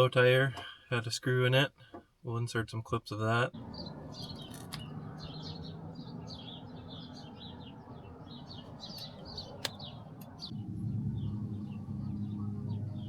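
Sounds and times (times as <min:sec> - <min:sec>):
small birds chirping: 0:03.5 - 0:13.0
low background rumble: 0:03.6 - 0:13.0
low steady hum: 0:09.6 - 0:13.0.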